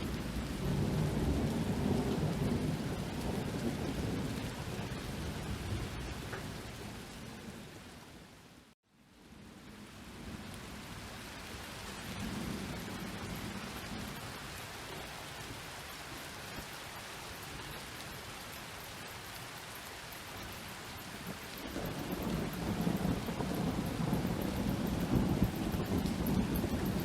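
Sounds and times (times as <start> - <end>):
distant thunder rumble: 0.0 - 8.0, 11.7 - 15.6, 21.0 - 27.0
rain pattering: 0.0 - 27.0.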